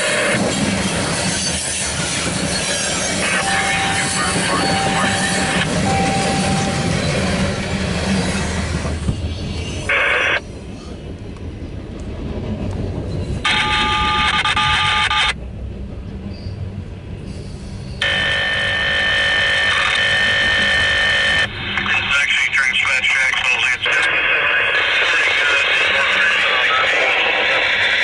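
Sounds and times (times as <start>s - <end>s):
train cars rolling past: 0.0s - 22.0s.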